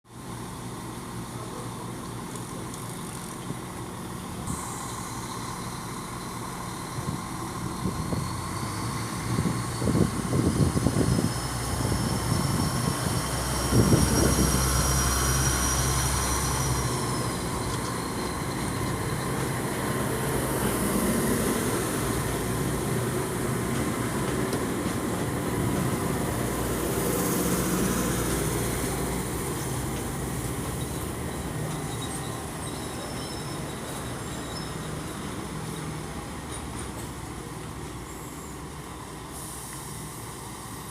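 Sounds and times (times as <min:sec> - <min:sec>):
train engine hum: 0:00.1 - 0:40.9
train knocks: 0:15.9 - 0:32.4.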